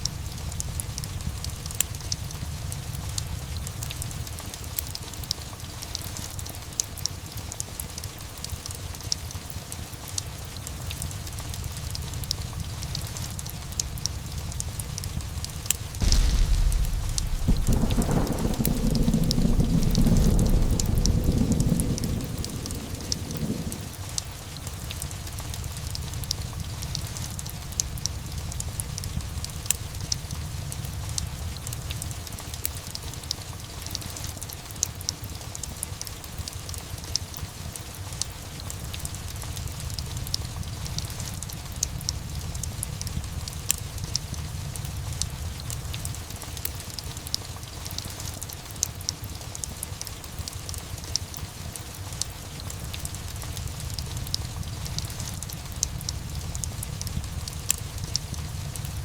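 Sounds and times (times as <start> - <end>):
fireplace crackles and pops: 0.0 - 59.0
steady rain: 0.0 - 59.0
low rumble: 16.0 - 24.0
thunder rumble: 16.0 - 30.7.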